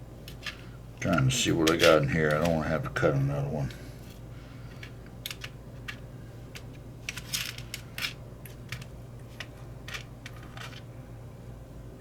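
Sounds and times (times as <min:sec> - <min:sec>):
low steady hum: 0:00.0 - 0:12.0
small parts clicking in container: 0:00.3 - 0:02.6, 0:04.7 - 0:10.9.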